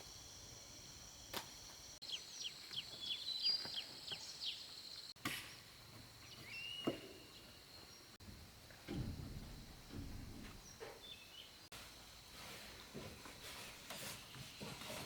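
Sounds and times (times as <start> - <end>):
bird chirping: 0.0 - 8.2.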